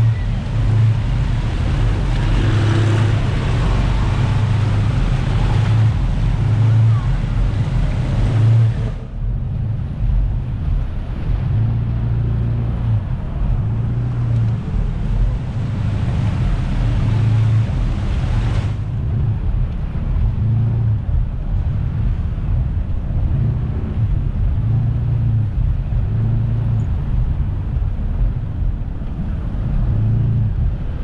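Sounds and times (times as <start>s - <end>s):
engine rumbling: 0.0s - 31.0s
wind noise on microphone: 0.0s - 31.0s.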